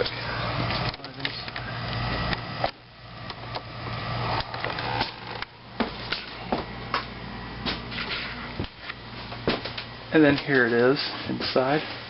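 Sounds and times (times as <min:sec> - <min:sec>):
steady low hum: 0:00.0 - 0:12.0
knocks and clicks of moving things: 0:04.4 - 0:10.5
footsteps: 0:04.8 - 0:12.0.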